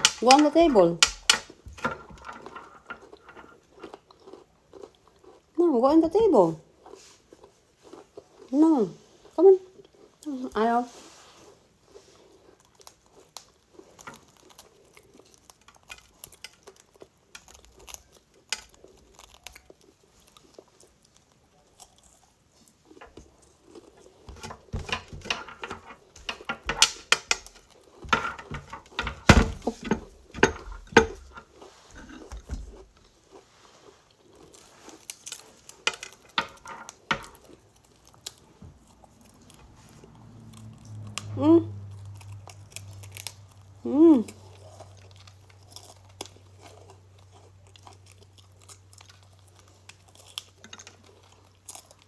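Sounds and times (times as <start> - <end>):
dishes and cutlery clicking: 0.0 - 3.6, 24.3 - 32.6
crunchy chewing: 1.0 - 5.6, 6.6 - 10.4, 11.0 - 52.0.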